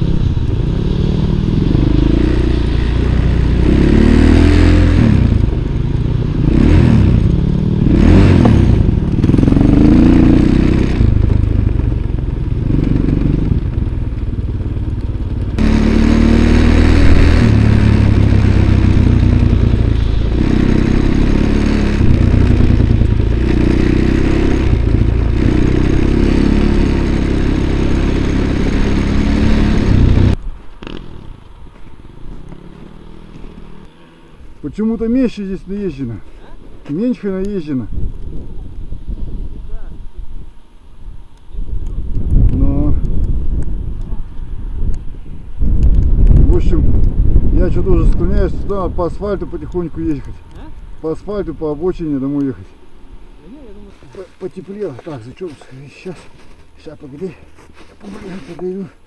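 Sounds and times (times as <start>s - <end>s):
motorcycle engine running: 0.0s - 37.4s
clatter and scraping: 53.9s - 59.0s.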